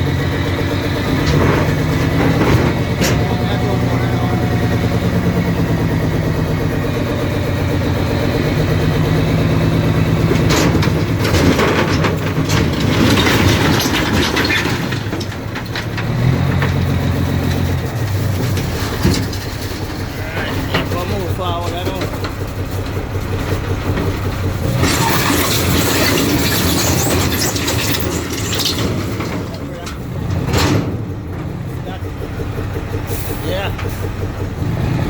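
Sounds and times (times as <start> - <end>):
diesel truck engine under load: 0.0 - 35.0
rock rattling and clattering: 8.3 - 32.5.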